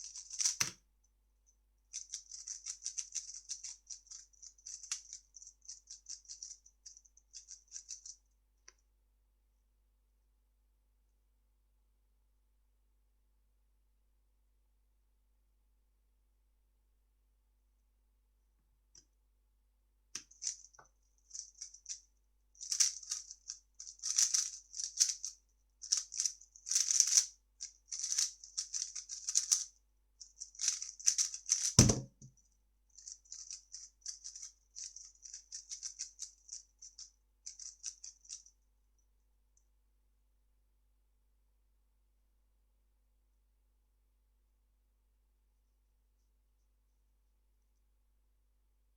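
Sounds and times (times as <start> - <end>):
plastic puzzle cube turning: 0.0 - 0.7, 1.9 - 5.2, 22.6 - 29.6, 30.4 - 32.1
low thump: 31.8 - 32.3.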